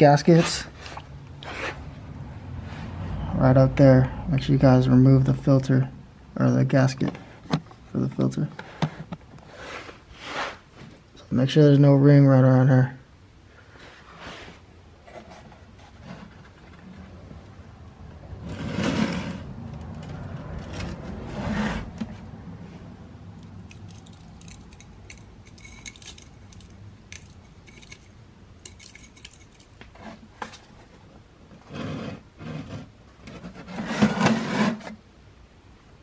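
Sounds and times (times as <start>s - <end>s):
metal tools clinking and scraping: 23.4s - 30.6s.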